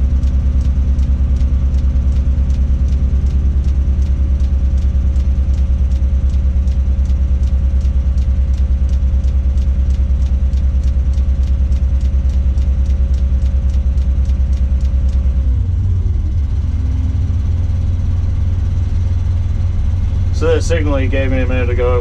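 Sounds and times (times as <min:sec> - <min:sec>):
light ticking: 0:00.0 - 0:15.7
crane diesel engine running: 0:00.0 - 0:22.0.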